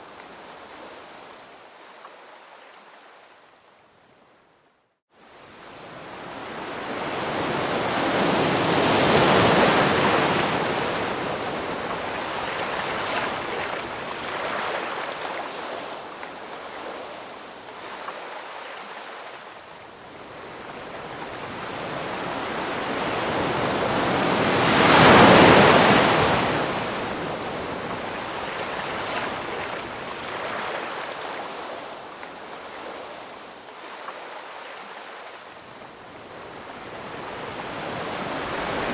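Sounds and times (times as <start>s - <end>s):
ocean waves breaking: 5.9s - 19.3s, 20.2s - 35.3s, 36.3s - 38.9s.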